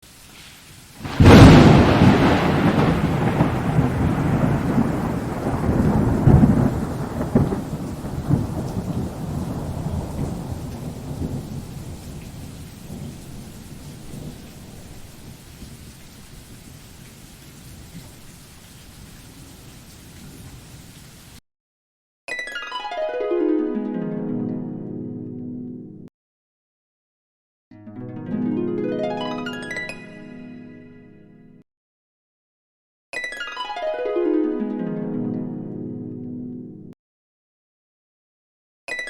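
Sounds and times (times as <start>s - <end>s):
faint rain hiss: 0.0s - 21.4s
rolling thunder: 1.0s - 18.3s.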